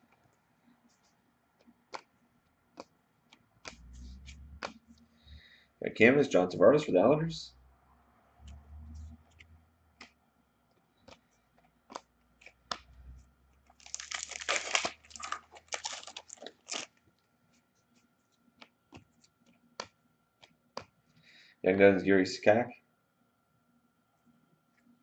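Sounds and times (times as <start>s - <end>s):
cards clicking and snapping: 1.6s - 4.8s, 10.0s - 10.2s, 10.8s - 12.9s, 13.7s - 16.9s
card pack wrapper crinkling: 13.7s - 17.0s.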